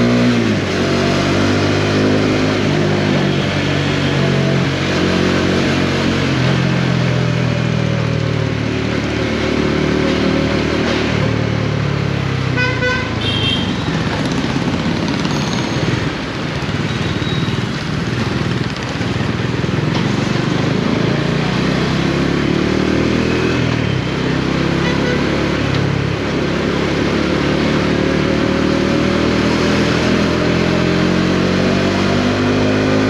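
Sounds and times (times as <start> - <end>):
wind and road noise: 0.0 - 33.0
motorcycle engine running: 12.9 - 23.1.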